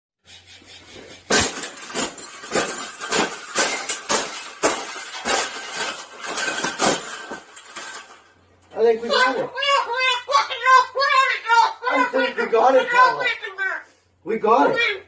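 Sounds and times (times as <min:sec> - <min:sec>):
sharp knocks and clinks: 0:01.2 - 0:08.4.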